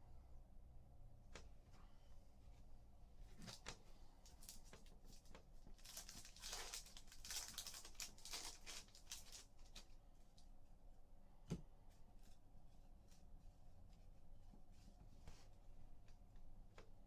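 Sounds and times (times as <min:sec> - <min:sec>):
wrapper crinkling and tearing: 0:04.3 - 0:10.0.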